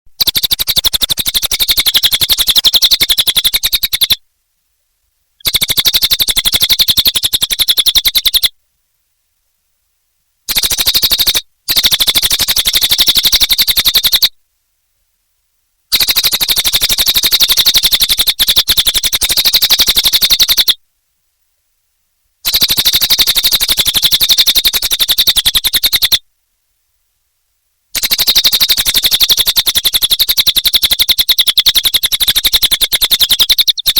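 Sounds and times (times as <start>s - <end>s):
bird fast trilling song: 0.1s - 4.2s, 5.4s - 8.5s, 10.5s - 14.3s, 15.9s - 20.8s, 22.4s - 26.2s, 28.0s - 33.9s.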